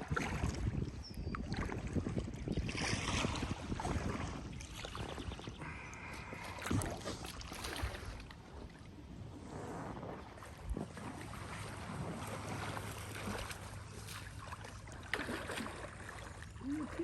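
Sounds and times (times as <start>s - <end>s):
wind on microphone: 0.0s - 13.6s
paddle splashing water: 0.0s - 17.0s.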